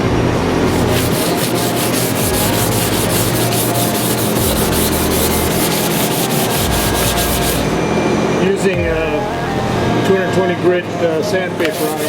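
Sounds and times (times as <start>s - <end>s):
sandpaper scrubbing back and forth: 0.7s - 7.7s, 11.6s - 12.0s.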